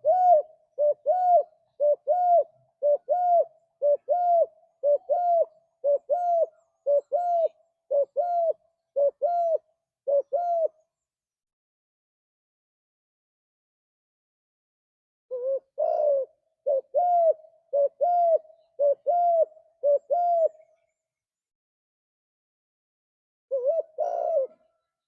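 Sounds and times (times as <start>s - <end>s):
dove cooing: 0.0s - 10.8s, 15.3s - 20.7s, 23.5s - 24.8s.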